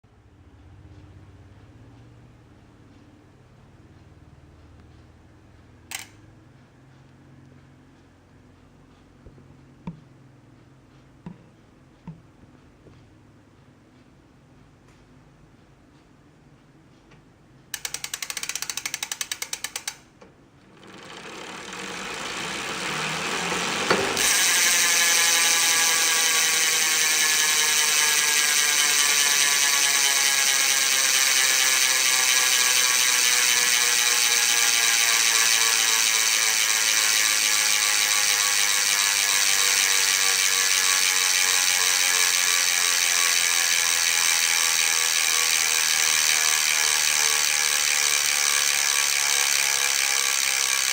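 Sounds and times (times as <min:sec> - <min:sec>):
freewheeling hub buzz: 0:04.8 - 0:06.3, 0:17.7 - 0:50.9
bicycle hub ratcheting clicks: 0:05.8 - 0:06.2, 0:17.7 - 0:50.9.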